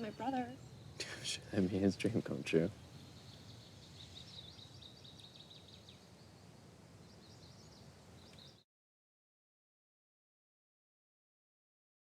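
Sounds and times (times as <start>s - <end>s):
low steady hush: 0.0s - 8.4s.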